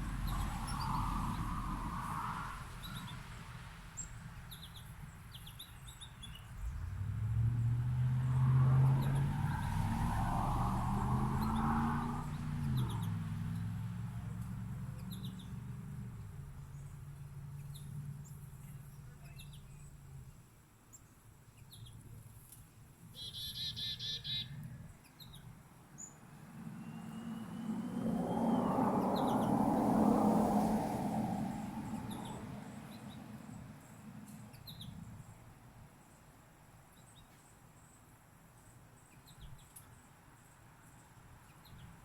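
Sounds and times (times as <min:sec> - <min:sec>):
songbirds chirping: 0:02.7 - 0:42.0
bird trill: 0:23.2 - 0:24.6, 0:26.7 - 0:29.5
rushing noise: 0:26.4 - 0:32.1.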